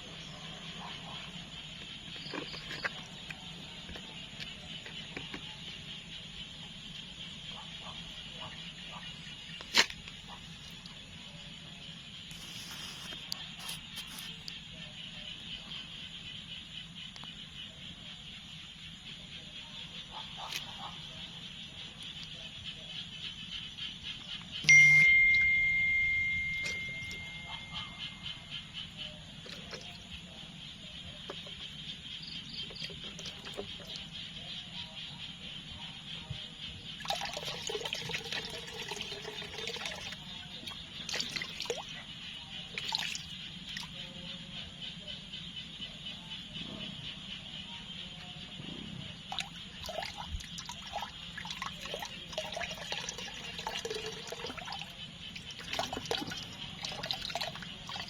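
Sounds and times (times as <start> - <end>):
insects trilling: 0.0 - 58.0
running water hiss: 12.2 - 14.5
water dripping and splashing: 29.4 - 30.0, 32.6 - 34.1, 37.0 - 42.0, 42.7 - 44.0, 49.3 - 58.0.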